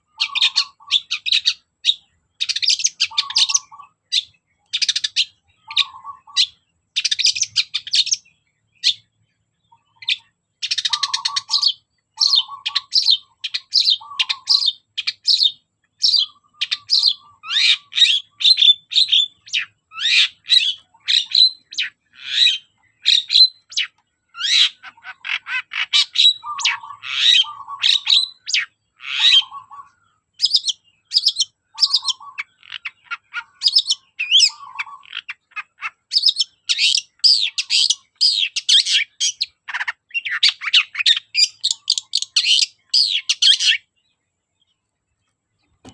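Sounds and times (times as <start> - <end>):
bird singing harsh chattering notes: 0.0 - 44.7.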